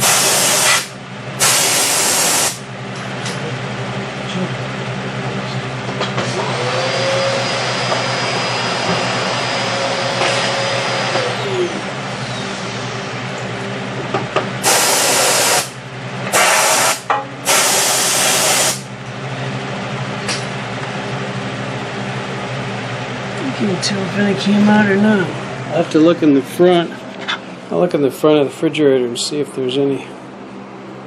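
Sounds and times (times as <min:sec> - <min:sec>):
compressed air blasts: 0:00.0 - 0:02.6, 0:14.6 - 0:18.9
motor hum: 0:05.3 - 0:29.4.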